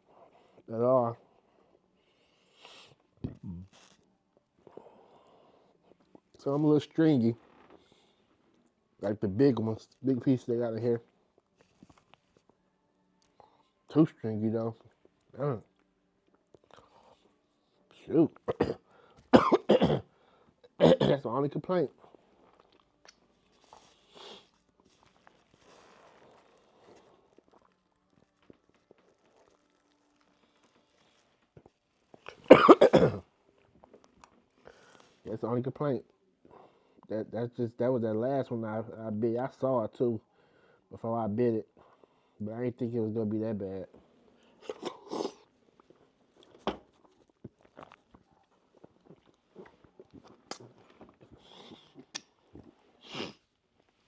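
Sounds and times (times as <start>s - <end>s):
faint chewing and mouth noises: 0.0s - 6.8s, 7.4s - 10.1s, 10.8s - 14.0s, 14.6s - 19.3s, 21.7s - 32.5s, 33.2s - 35.4s, 43.9s - 54.0s
person chewing food: 44.6s - 52.8s
soft puff of breath: 53.0s - 53.4s.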